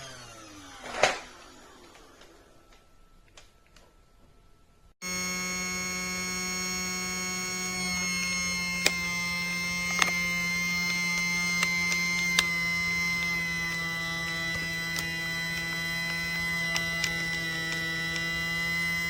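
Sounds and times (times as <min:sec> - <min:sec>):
small electric motor buzzing: 0:05.0 - 0:19.0
sharp clicks: 0:09.8 - 0:19.0.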